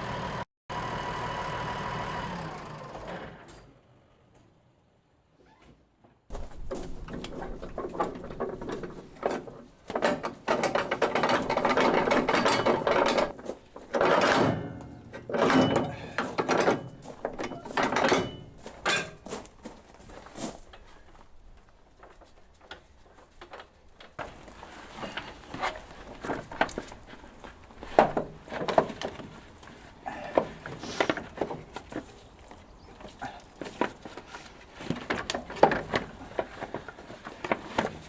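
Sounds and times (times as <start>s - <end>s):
mechanical clattering and ratcheting: 6.6s - 19.3s.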